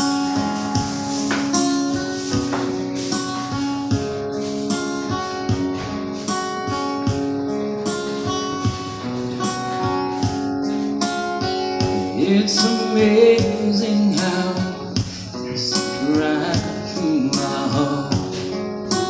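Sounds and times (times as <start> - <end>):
acoustic guitar strumming: 0.0 - 19.0
person singing: 11.8 - 19.0.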